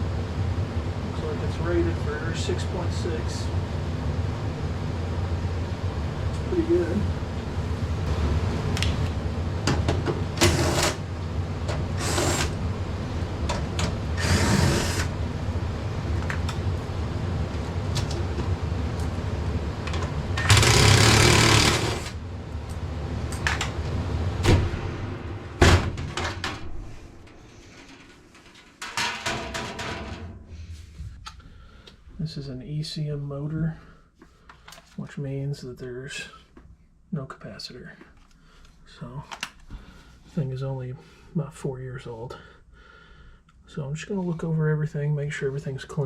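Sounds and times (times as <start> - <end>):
furnace blower motor running: 0.0 - 28.6.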